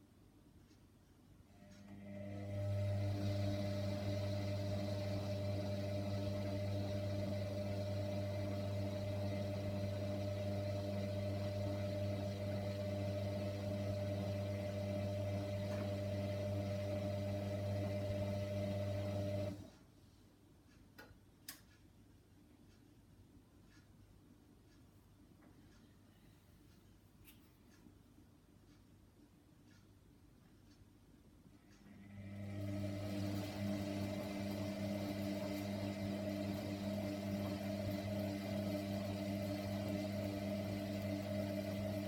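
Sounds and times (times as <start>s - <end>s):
washing machine motor hum: 1.5s - 19.7s, 31.6s - 42.0s
faint clicks: 20.7s - 22.0s.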